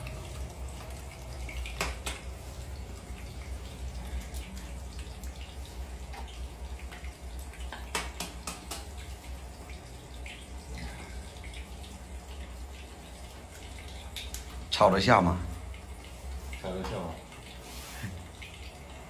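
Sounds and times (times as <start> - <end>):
light watery sounds: 0.0 - 19.0.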